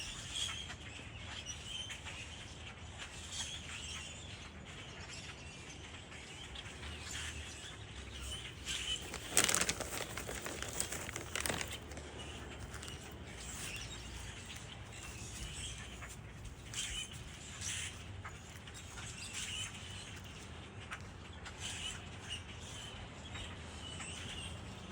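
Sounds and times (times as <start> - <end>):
bird wings flapping: 8.7 - 17.1.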